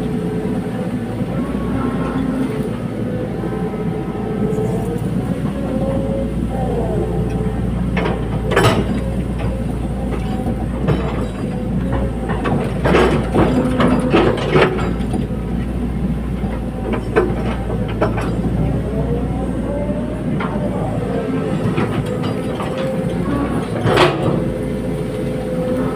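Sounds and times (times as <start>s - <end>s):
excavator diesel engine running: 0.0s - 25.9s
metallic clanks and knocks: 7.3s - 15.4s, 16.4s - 19.0s, 20.4s - 24.6s.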